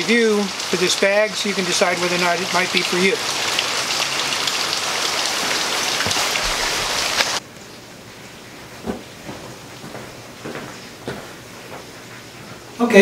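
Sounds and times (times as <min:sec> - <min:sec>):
rain on wet pavement: 0:00.0 - 0:07.4.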